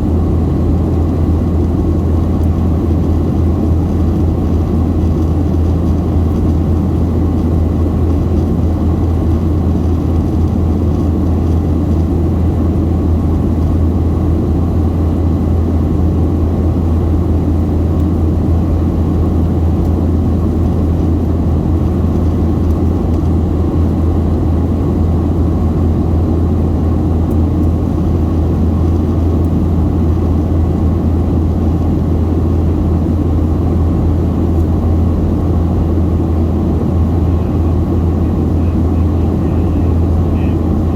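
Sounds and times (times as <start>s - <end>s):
jet engine rumble in cabin: 0.0s - 40.9s.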